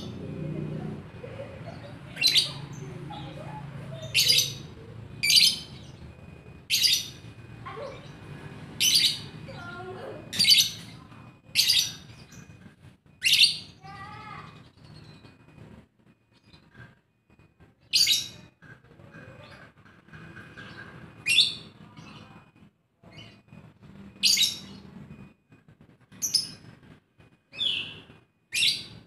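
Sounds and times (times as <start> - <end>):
lovebird chirps: 1.6 - 6.1, 8.8 - 12.6.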